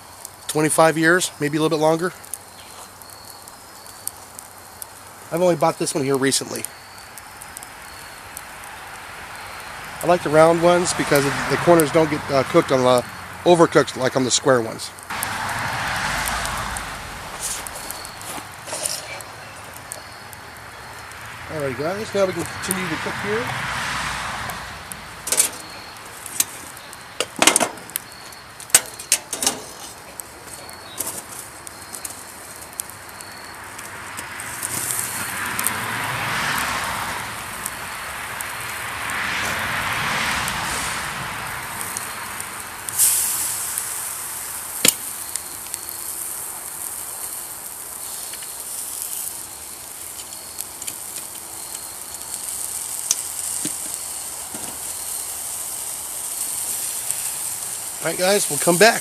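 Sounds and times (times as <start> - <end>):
campfire crackling and hissing: 0.0 - 59.0
loud crack: 15.0 - 33.0, 33.7 - 55.3
sharp pops and knocks: 25.2 - 30.3, 44.8 - 45.2, 53.0 - 54.9.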